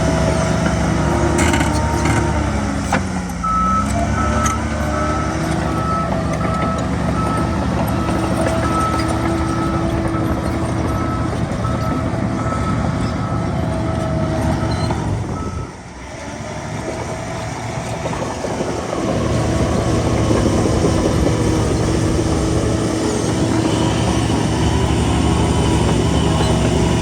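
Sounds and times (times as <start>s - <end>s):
heavy diesel engine running: 0.0s - 27.0s
reversing alarm beeping: 3.4s - 15.8s.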